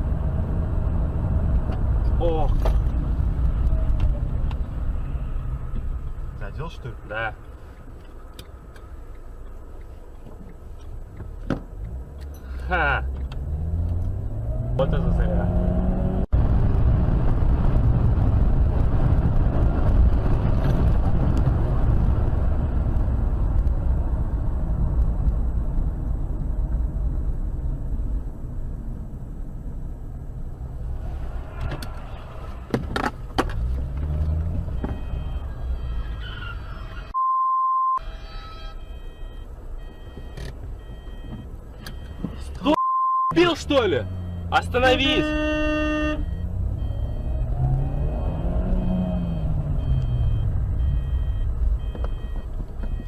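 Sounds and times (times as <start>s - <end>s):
car road and engine rumble: 0.0s - 53.0s
censor bleep: 34.7s - 36.2s, 37.1s - 53.0s.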